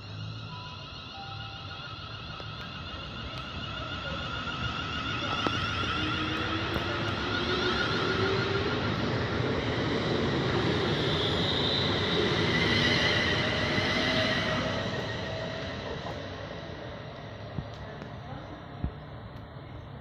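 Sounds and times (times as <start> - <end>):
faint steady tones: 0.0 - 9.2
train passing: 0.0 - 20.0.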